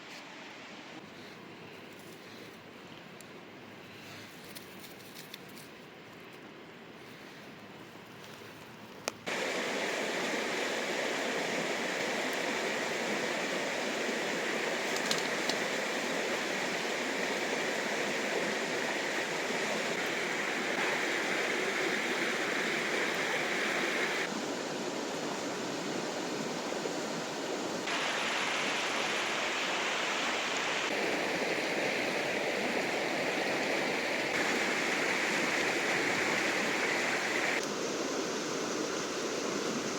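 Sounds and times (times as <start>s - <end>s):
river water rushing: 9.3s - 39.9s.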